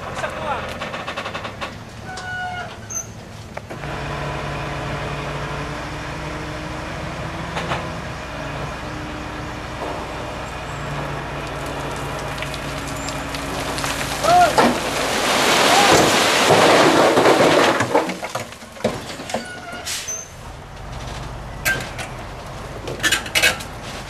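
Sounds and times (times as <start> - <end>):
large engine droning: 3.7 - 13.8.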